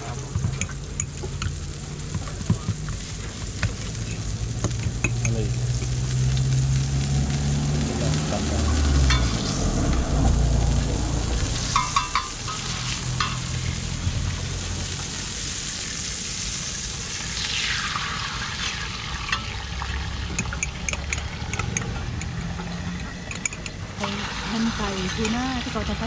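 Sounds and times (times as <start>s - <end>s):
flatbread sizzling in oil: 0.0s - 26.0s
low rumble: 4.3s - 15.4s
sharp clinks: 11.8s - 13.5s.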